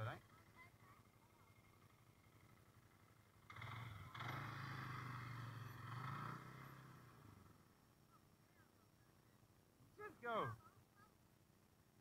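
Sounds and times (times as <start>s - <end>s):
off-road vehicle engine passing: 1.3s - 7.9s.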